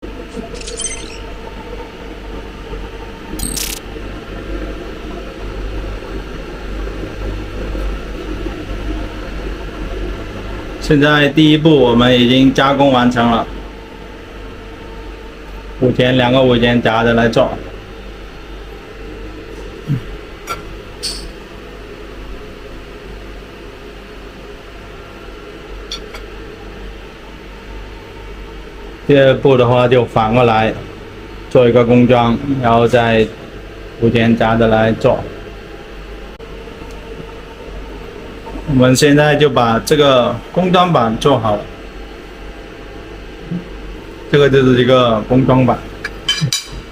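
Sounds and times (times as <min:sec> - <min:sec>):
machine low hum: 0:00.0 - 0:46.9.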